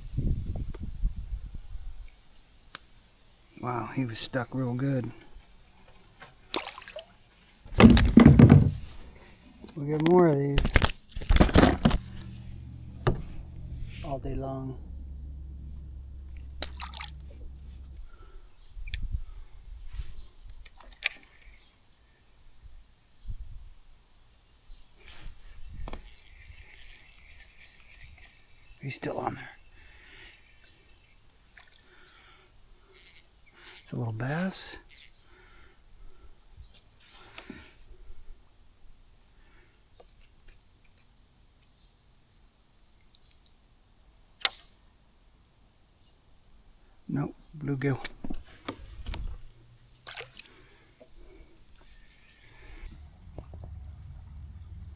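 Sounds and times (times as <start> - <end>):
insects droning: 0.0 - 54.9
sharp clicks and knocks: 7.7 - 18.3
low thumps: 7.7 - 20.2, 51.0 - 54.9
low rumble: 10.6 - 19.9, 52.5 - 54.9.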